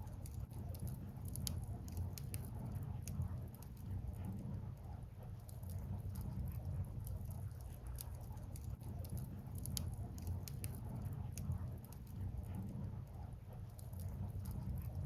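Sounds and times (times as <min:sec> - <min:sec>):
wood fire crackling and popping: 0:00.0 - 0:04.0, 0:05.4 - 0:12.5
low fire rumble: 0:00.0 - 0:15.0.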